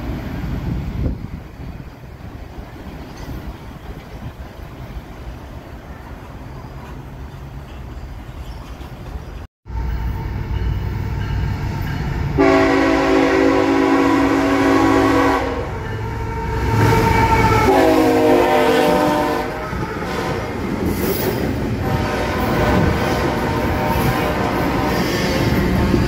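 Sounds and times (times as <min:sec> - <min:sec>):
train cars rumbling and clacking: 0:00.0 - 0:26.0
train horn blasts: 0:09.7 - 0:20.6, 0:21.8 - 0:26.0.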